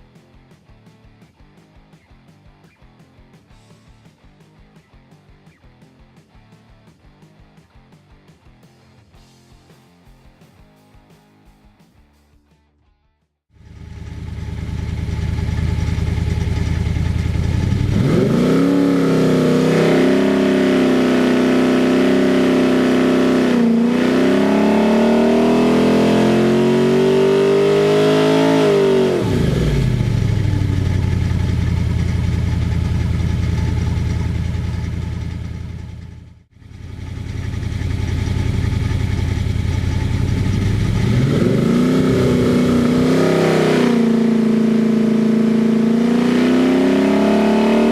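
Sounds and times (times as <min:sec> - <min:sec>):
engine idling and revving: 0:13.5 - 0:47.9.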